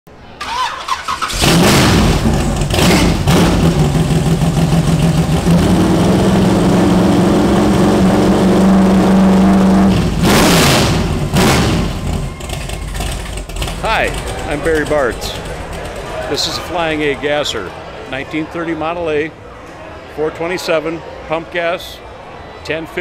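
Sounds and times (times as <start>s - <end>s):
loud vee-eight engine running: 1.3s - 17.2s.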